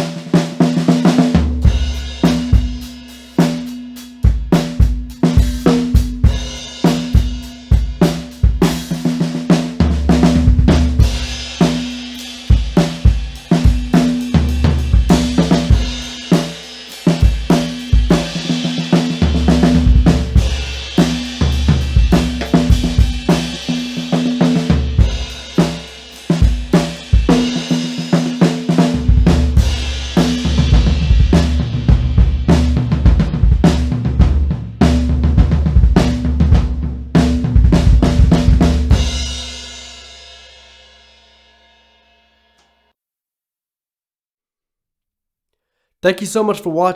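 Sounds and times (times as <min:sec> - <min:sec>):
drum set groove: 0:00.0 - 0:41.8
bass drum booming: 0:09.8 - 0:11.6, 0:12.5 - 0:16.3, 0:19.2 - 0:25.6, 0:28.8 - 0:39.4.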